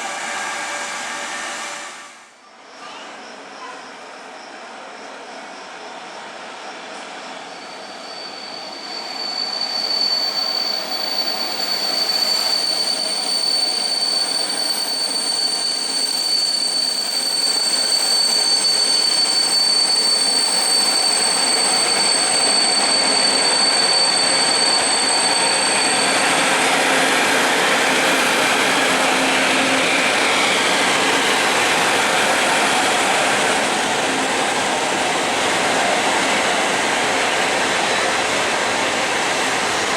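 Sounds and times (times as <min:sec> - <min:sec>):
train rumbling over rails: 0:00.0 - 0:39.9
metallic wheel squeal: 0:07.6 - 0:27.2.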